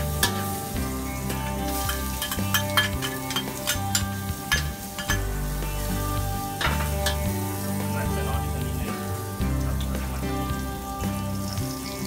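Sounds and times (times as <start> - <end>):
metal spatula scraping a wok: 0.0 - 7.8
background music: 0.0 - 12.0
food sizzling in oil: 0.0 - 12.0.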